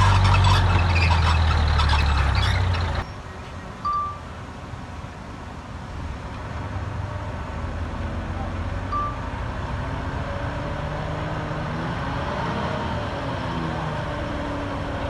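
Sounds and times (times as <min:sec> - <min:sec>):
brief high squeak: 0:00.0 - 0:02.9
heavy diesel engine under load: 0:00.0 - 0:15.0.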